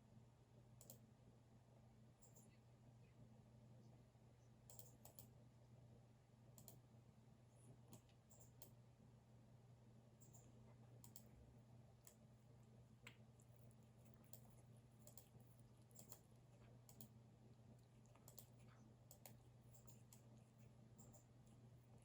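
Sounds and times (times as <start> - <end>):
low steady hum: 0.0 - 22.0
keyboard and mouse clicks: 4.7 - 5.3, 6.6 - 6.8, 10.2 - 11.3, 14.2 - 15.3, 15.9 - 16.3, 16.9 - 17.1, 18.2 - 20.3.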